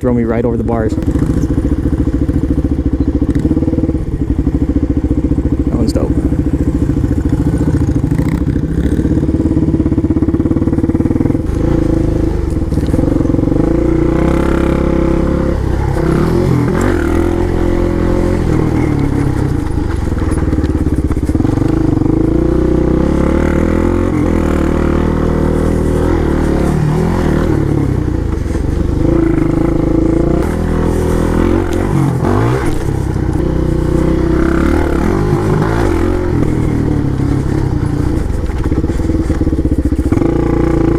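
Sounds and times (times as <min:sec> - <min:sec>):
pit bike engine revving: 0:00.2 - 0:40.9.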